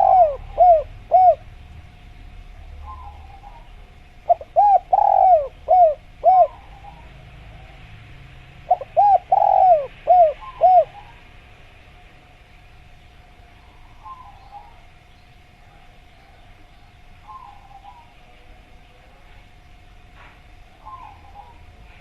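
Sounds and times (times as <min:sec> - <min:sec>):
dove cooing: 0:00.0 - 0:01.6, 0:02.6 - 0:07.9, 0:08.6 - 0:11.3, 0:13.8 - 0:14.9, 0:17.2 - 0:18.5, 0:20.7 - 0:22.0.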